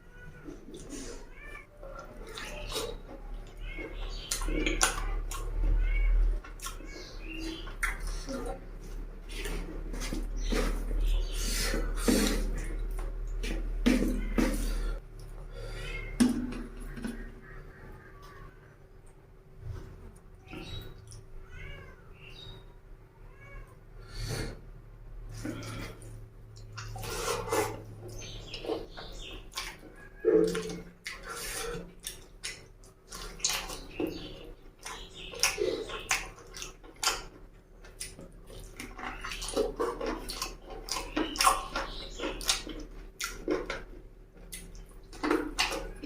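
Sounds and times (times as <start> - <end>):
person chewing and slurping: 6.4 - 15.4, 34.8 - 46.0.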